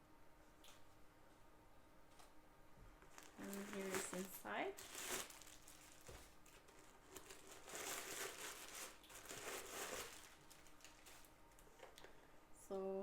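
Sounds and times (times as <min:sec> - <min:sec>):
handbag rustling and crinkling: 0:03.0 - 0:12.0.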